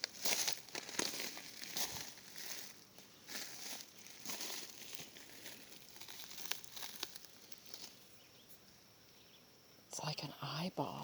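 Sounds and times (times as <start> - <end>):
footsteps through dry leaves: 0.0 - 8.0.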